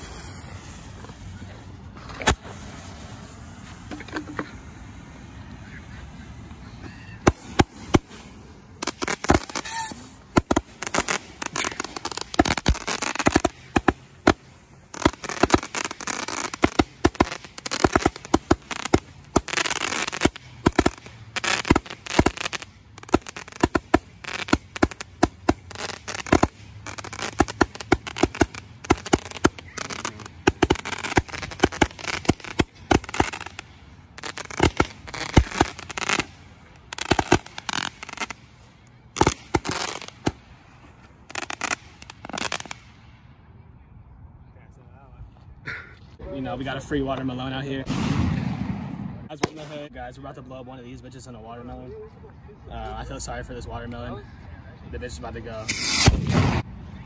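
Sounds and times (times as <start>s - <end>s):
fireworks bangs and crackling: 0.0s - 6.6s, 7.2s - 38.5s, 39.1s - 40.6s, 41.2s - 42.9s, 47.8s - 49.9s, 55.6s - 57.0s.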